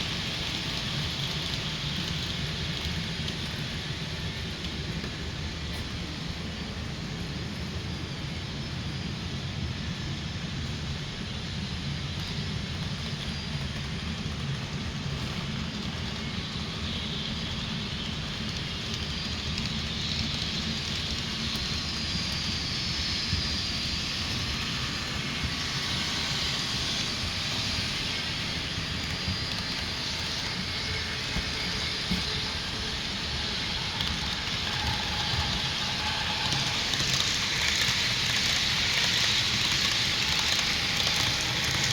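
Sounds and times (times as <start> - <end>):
model train rumbling on track: 0.0 - 41.9
rushing hiss: 16.1 - 41.9.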